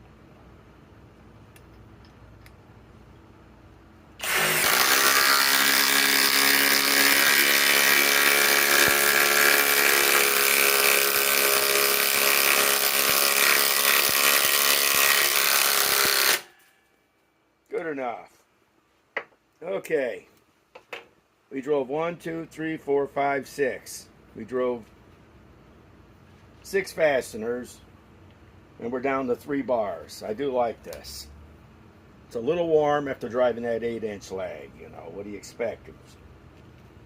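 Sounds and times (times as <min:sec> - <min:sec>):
impact driver hammering: 0:04.2 - 0:16.6.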